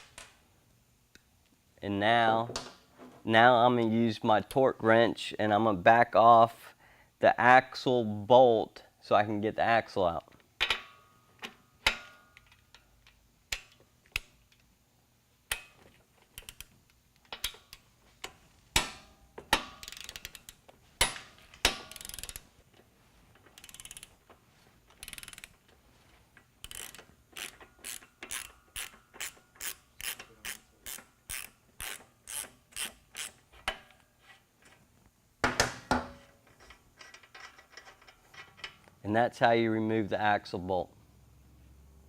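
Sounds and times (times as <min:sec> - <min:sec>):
ratcheting wrench clicks: 0:15.5 - 0:18.9, 0:19.5 - 0:20.6, 0:21.6 - 0:22.4, 0:23.5 - 0:24.2, 0:24.9 - 0:25.6, 0:26.6 - 0:33.4.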